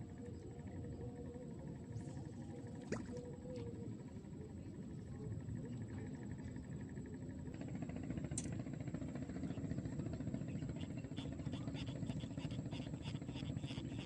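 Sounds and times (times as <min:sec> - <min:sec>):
small engine running: 0:07.4 - 0:14.0.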